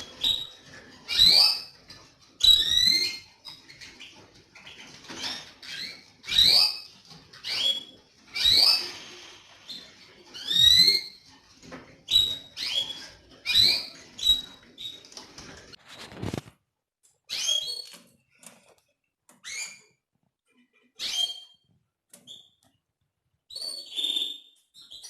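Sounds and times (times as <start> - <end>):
canaries rising call notes: 0.0 - 11.4, 12.0 - 15.4.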